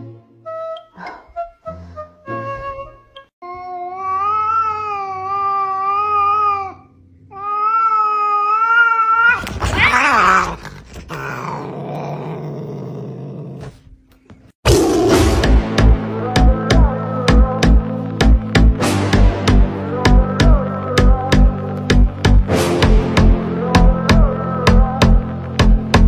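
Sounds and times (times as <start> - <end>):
cats yowling: 3.8 - 11.7
cat growling: 4.5 - 13.8
music with thumping beat: 15.1 - 26.0.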